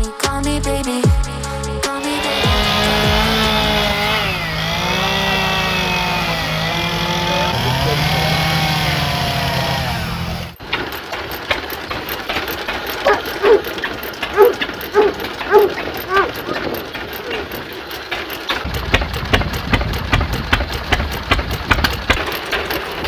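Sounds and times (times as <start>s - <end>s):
steady low hum: 0.0s - 10.6s, 18.6s - 22.3s
engine running: 0.0s - 23.0s.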